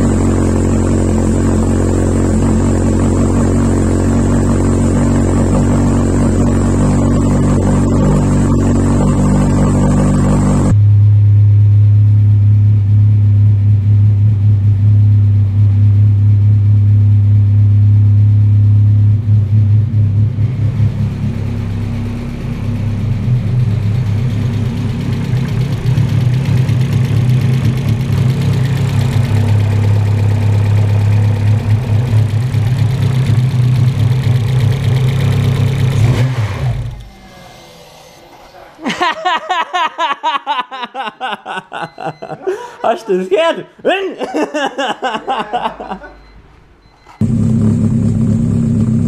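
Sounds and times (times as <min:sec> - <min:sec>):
car engine idling: 0:00.0 - 0:10.8, 0:18.2 - 0:37.5, 0:47.2 - 0:49.0.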